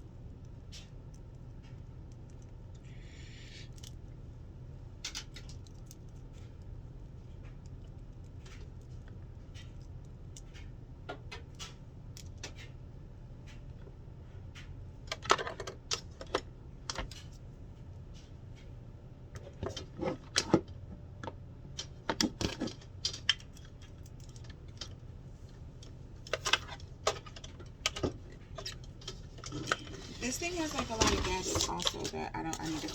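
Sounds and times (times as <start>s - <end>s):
clicks and knocks of handling: 13.4s - 17.4s, 19.3s - 25.0s, 25.8s - 32.9s.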